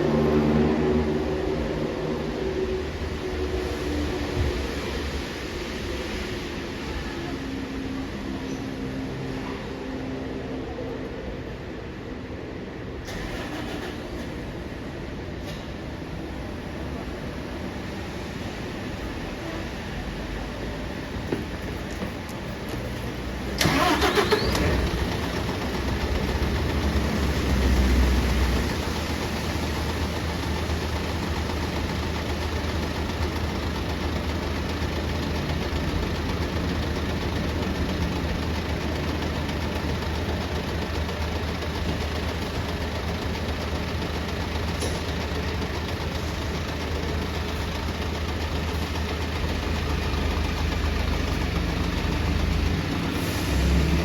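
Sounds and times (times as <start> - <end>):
bus engine starting and idling: 0.0 - 54.0.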